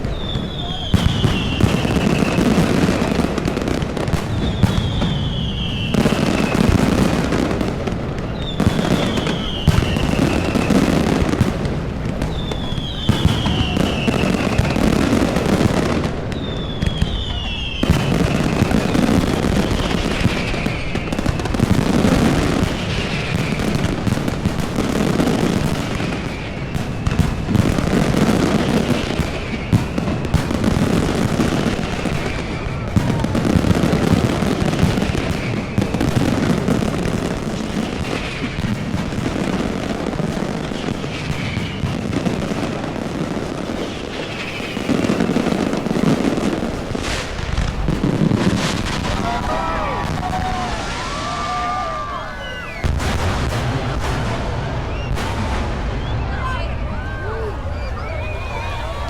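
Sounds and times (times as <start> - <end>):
fireworks bangs and crackling: 0.0 - 59.0
high whistle falling in pitch: 49.5 - 53.0, 54.8 - 59.0.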